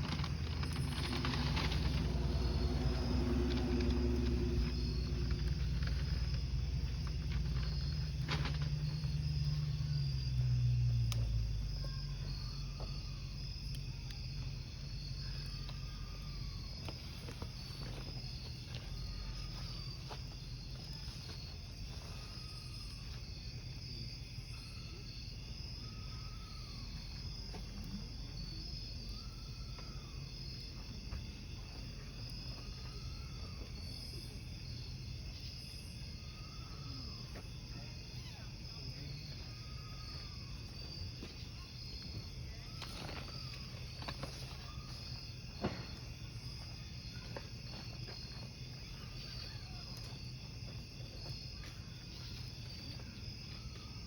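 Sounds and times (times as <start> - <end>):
firewood popping and crackling: 0.0 - 9.6
low rumble: 0.0 - 20.9
crickets chirping: 0.0 - 54.0.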